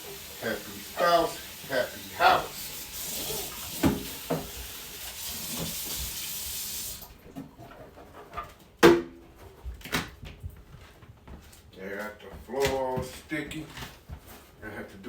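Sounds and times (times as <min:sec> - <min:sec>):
tap water running into a sink: 0:00.0 - 0:07.4.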